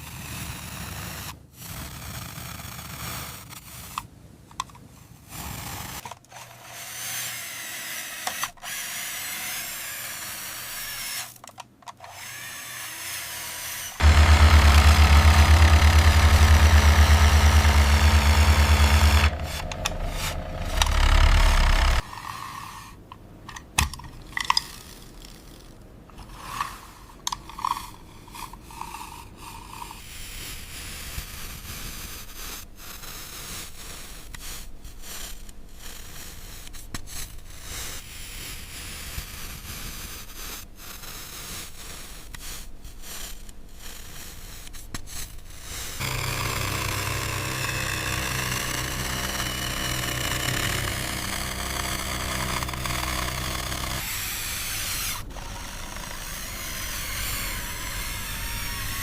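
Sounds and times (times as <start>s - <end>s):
engine-like running sound: 14.0s - 22.0s, 46.0s - 54.2s
toy vehicles scraping in sand: 26.2s - 59.0s.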